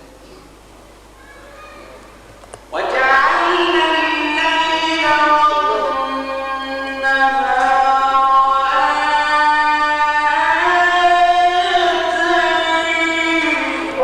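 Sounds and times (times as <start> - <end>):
man chanting a long note: 2.8 - 14.0.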